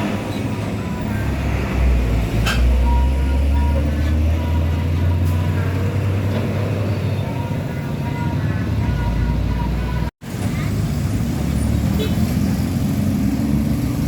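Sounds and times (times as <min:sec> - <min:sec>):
truck diesel engine rumbling: 0:00.0 - 0:14.0.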